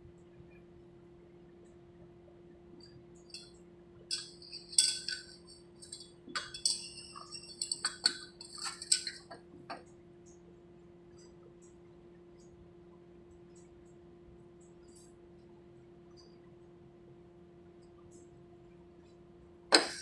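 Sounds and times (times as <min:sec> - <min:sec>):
steady low hum: 0:00.0 - 0:20.0
metal tools clinking and scraping: 0:03.3 - 0:03.5, 0:04.1 - 0:09.8, 0:19.7 - 0:20.0.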